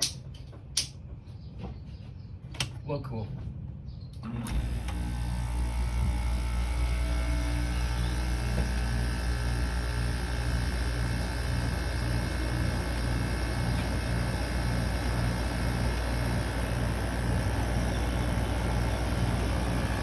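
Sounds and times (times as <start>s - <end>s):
air conditioner humming: 4.2s - 20.0s.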